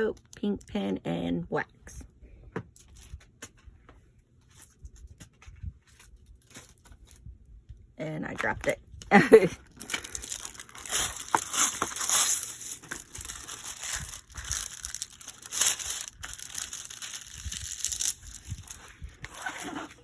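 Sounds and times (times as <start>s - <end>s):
plastic packaging crinkling: 9.2s - 20.0s.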